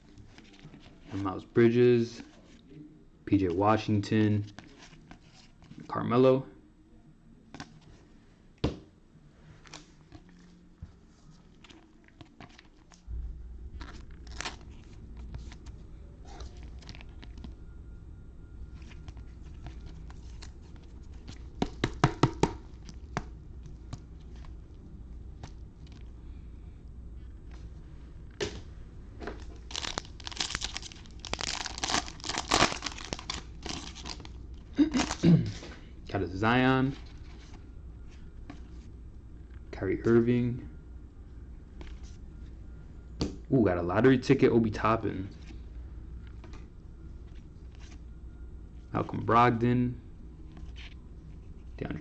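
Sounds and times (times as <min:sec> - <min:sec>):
low rumble: 0:13.0 - 0:14.3
foil wrappers crinkling and tearing: 0:13.8 - 0:15.5, 0:29.4 - 0:35.3.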